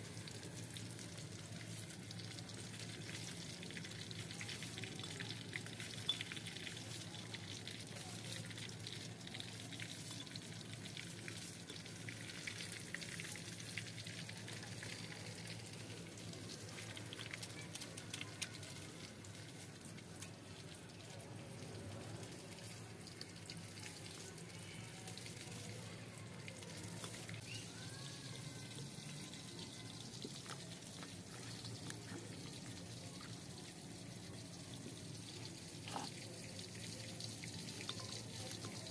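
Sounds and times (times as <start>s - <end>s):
food frying sizzle: 0.0s - 38.9s.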